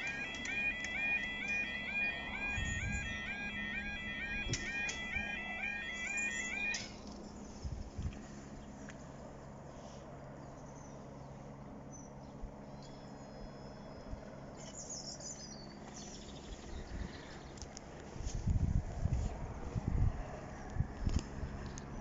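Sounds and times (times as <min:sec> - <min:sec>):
small birds chirping: 0:10.4 - 0:17.7.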